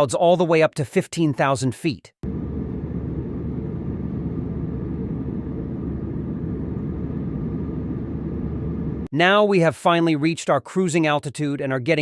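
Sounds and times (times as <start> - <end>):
airliner cabin engine roar: 2.2 - 9.1.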